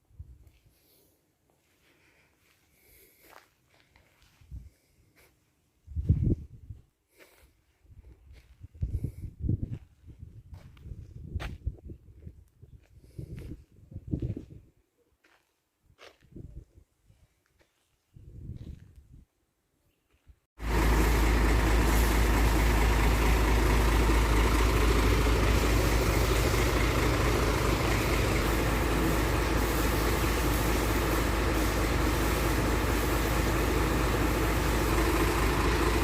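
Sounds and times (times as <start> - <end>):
truck engine rumbling: 20.6 - 36.0.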